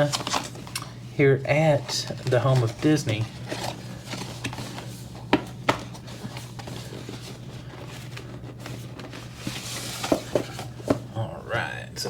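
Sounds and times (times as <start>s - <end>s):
steady low hum: 0.0s - 12.0s
cardboard box being handled: 1.7s - 11.1s.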